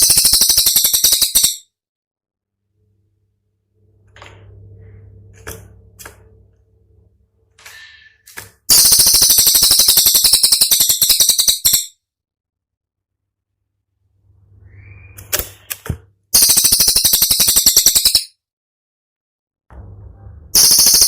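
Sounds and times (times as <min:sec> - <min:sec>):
fast rattling bird call: 0:00.0 - 0:01.6, 0:08.7 - 0:11.9, 0:16.4 - 0:18.3, 0:20.6 - 0:21.0
low hum: 0:02.4 - 0:08.1, 0:19.7 - 0:20.6.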